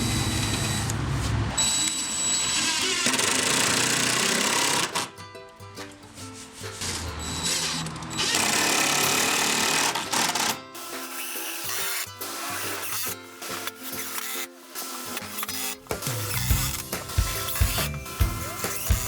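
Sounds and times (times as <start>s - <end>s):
power tool running: 0.0s - 5.1s, 6.8s - 19.0s
background music: 4.2s - 19.0s.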